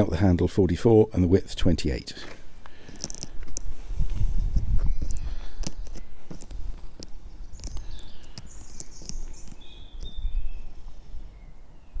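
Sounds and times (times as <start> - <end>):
small birds chirping: 2.6 - 12.0.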